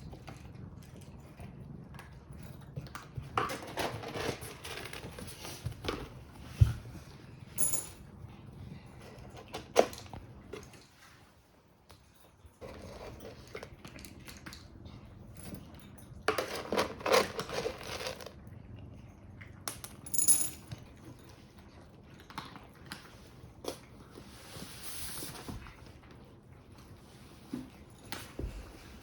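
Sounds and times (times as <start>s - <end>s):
handling knocks and rustles: 3.1s - 8.0s, 15.3s - 18.3s, 23.6s - 29.0s.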